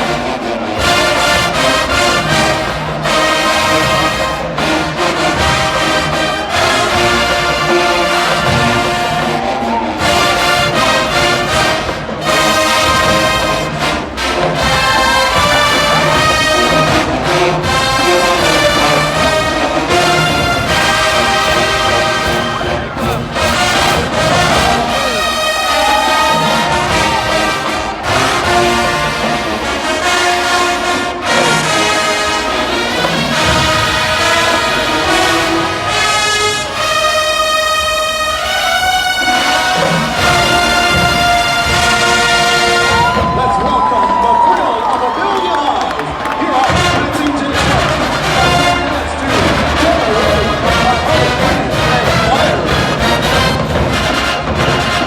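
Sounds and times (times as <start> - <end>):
brass-heavy marching band: 0.0 - 55.0.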